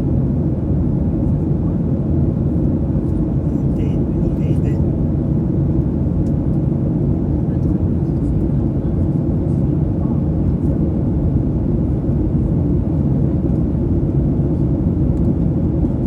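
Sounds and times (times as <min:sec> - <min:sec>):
airliner cabin engine and air noise: 0:00.0 - 0:16.0.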